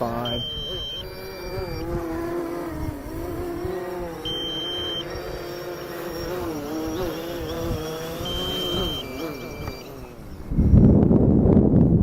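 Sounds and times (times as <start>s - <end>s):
high electronic beep: 0.0s - 2.0s, 3.7s - 10.8s
drone propellers buzzing: 0.0s - 12.0s
wind rumbling on microphone: 0.0s - 12.0s.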